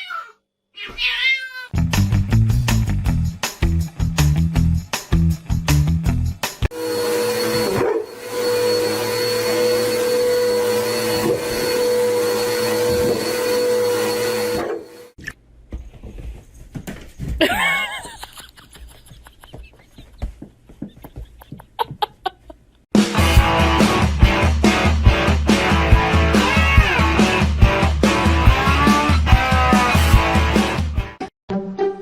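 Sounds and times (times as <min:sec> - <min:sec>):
small electric motor whine: 0:06.7 - 0:15.2.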